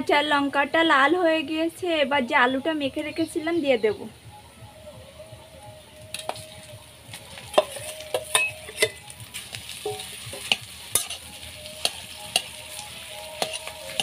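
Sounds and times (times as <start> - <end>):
potato sizzling in oil: 6.1 - 14.0
metal spatula scraping pan: 7.5 - 9.0, 9.8 - 14.0.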